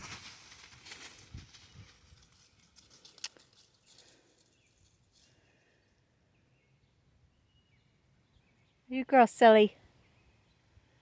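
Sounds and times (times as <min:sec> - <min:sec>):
faint rustling: 0:00.0 - 0:05.7.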